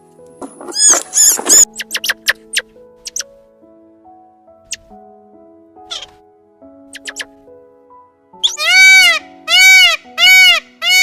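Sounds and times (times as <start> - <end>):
background music of held notes: 0.0 - 11.0
cat meowing: 5.9 - 6.2.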